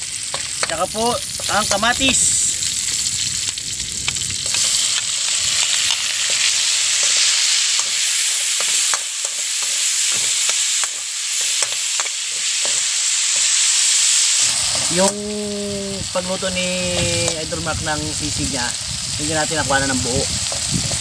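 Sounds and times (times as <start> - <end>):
food sizzling in hot oil: 0.0 - 21.0
metal spoon scraping a wok: 5.6 - 14.9.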